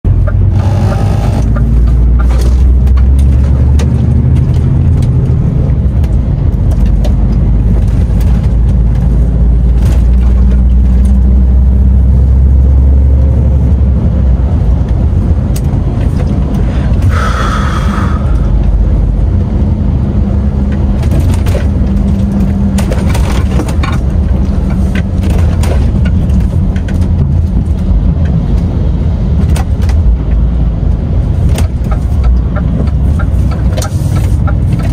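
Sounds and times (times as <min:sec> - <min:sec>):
truck engine and road rumble: 0:00.0 - 0:34.9
clicks and rattles: 0:01.4 - 0:11.2, 0:20.7 - 0:28.7.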